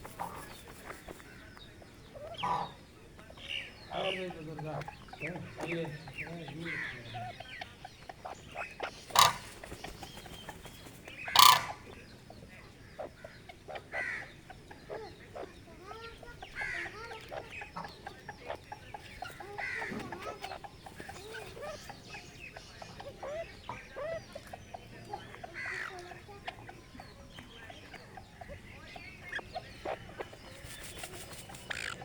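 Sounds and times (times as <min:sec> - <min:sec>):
francolin clucking: 0:00.0 - 0:32.0.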